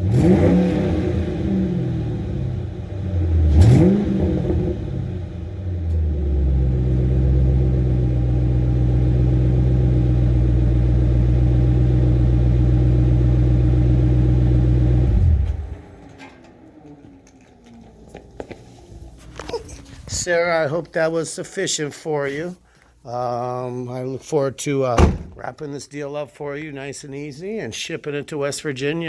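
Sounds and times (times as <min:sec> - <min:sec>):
car engine revving and idling: 0:00.0 - 0:19.2.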